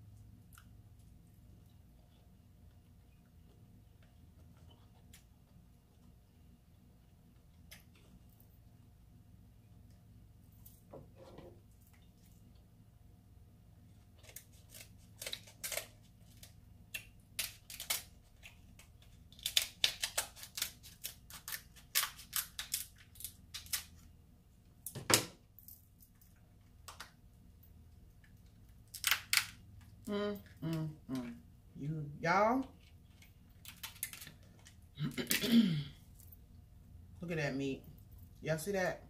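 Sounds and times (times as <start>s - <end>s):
crab shell cracking: 14.2s - 24.0s, 28.8s - 29.6s, 33.1s - 34.8s.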